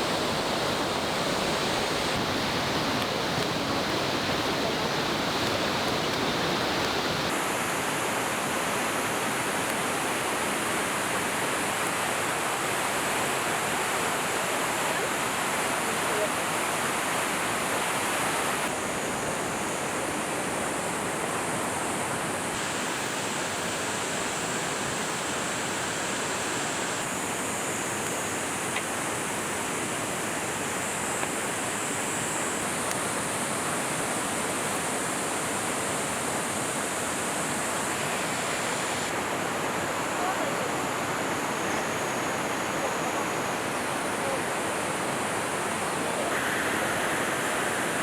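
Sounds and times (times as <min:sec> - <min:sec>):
river flowing over rocks: 0:00.0 - 0:48.0.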